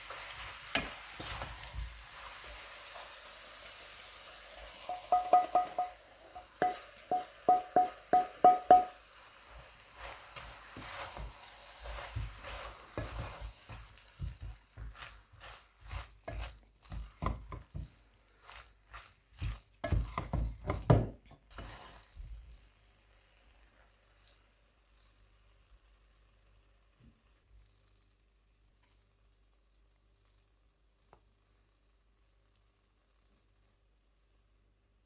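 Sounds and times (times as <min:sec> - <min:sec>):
spoon scraping in a pot: 0:04.5 - 0:20.9, 0:21.5 - 0:22.2
spoon tapping a pot: 0:04.9 - 0:09.1, 0:19.8 - 0:21.2.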